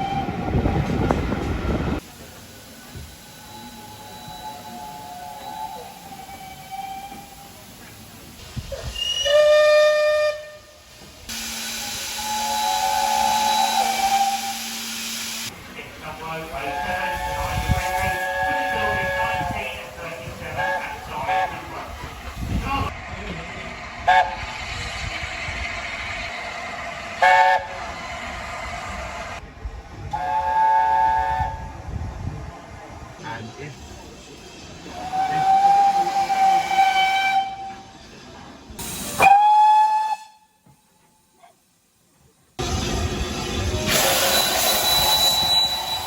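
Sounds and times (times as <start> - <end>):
loud steam hiss: 0.0 - 40.2, 42.6 - 46.0
steam locomotive whistle: 3.2 - 7.6, 8.9 - 15.5, 16.5 - 19.6, 27.2 - 27.9, 30.1 - 31.9, 34.9 - 37.9, 39.0 - 40.6, 43.9 - 46.0.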